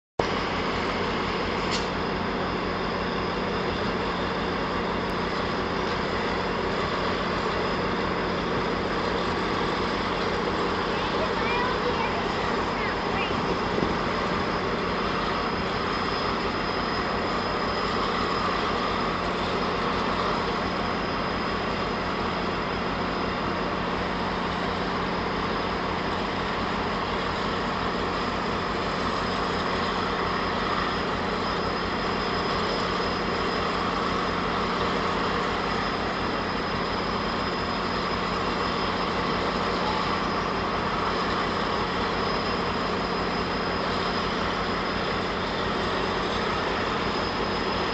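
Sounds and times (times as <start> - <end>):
diesel locomotive idling: 0.2 - 47.9
high whine: 0.2 - 47.9.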